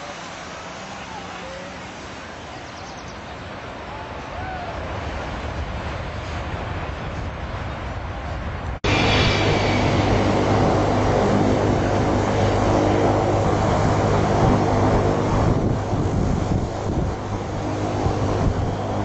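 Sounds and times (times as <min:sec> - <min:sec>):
jet airliner engine noise: 0:00.0 - 0:19.0
wind buffeting microphone: 0:04.4 - 0:19.0.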